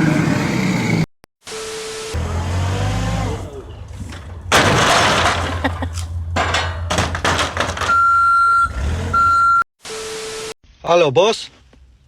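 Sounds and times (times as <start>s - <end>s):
knocks and clatters: 4.0s - 8.0s
loud crash: 4.5s - 5.8s
high-pitched beep: 7.9s - 9.6s.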